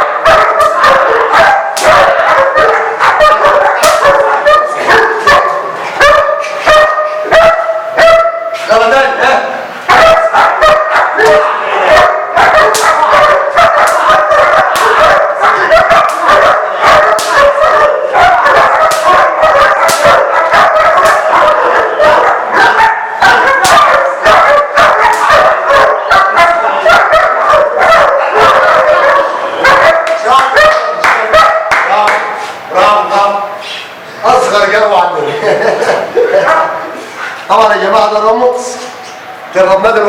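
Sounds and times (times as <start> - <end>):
puppy yipping barks: 0.0 - 8.6, 9.9 - 31.7
sharp cracks: 3.8 - 4.2, 12.6 - 13.1, 13.8 - 15.0, 17.0 - 17.5, 18.8 - 19.2, 19.8 - 20.2, 20.9 - 21.3, 25.1 - 25.3.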